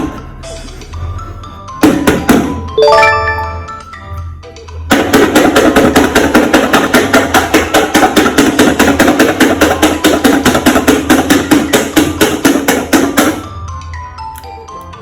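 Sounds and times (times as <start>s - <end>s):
rapid sharp knocking: 4.9s - 13.3s.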